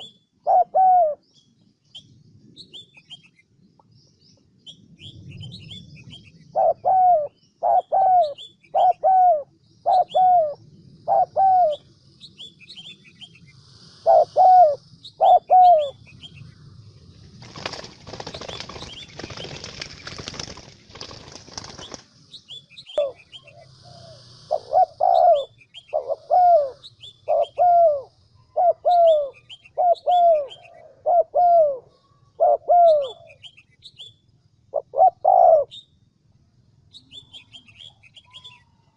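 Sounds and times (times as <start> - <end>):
dove cooing: 0.0 - 1.2, 5.5 - 11.9, 14.0 - 16.1, 22.9 - 33.5, 34.7 - 35.8
small birds chirping faintly: 0.0 - 38.9
wing flapping rustle: 17.2 - 22.4.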